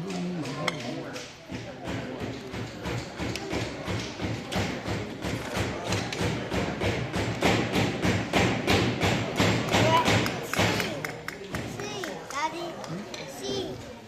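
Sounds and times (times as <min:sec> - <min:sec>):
hammers knocking nails into wood: 0:00.6 - 0:11.7.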